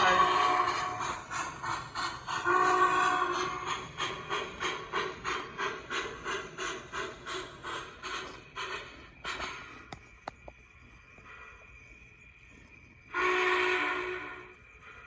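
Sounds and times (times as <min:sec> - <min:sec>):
model steam locomotive chuffing: 0:00.0 - 0:10.0, 0:13.1 - 0:15.0.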